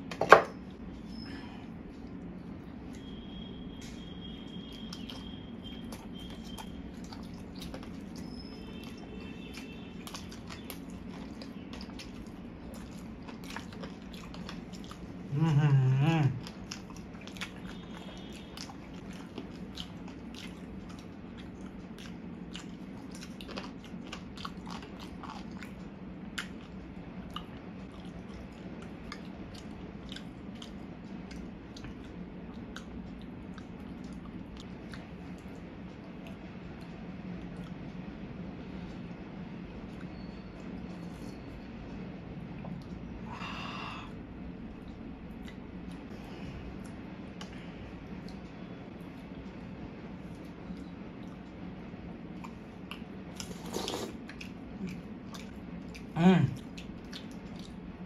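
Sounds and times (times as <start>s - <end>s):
steady low hum: 0.0s - 58.0s
people chewing: 0.8s - 38.2s, 42.6s - 58.0s
wet mouth clicks: 52.4s - 57.8s.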